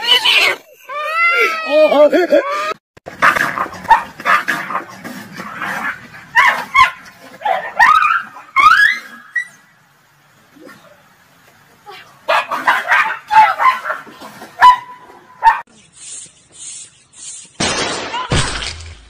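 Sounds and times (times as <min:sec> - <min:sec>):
small dog yelping: 0:06.3 - 0:09.6, 0:12.3 - 0:15.6.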